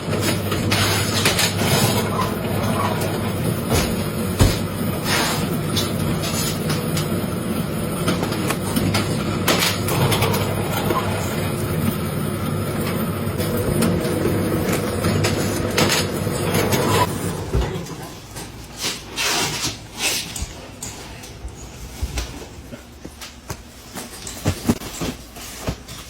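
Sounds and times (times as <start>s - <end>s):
factory machinery humming: 0.0s - 18.0s.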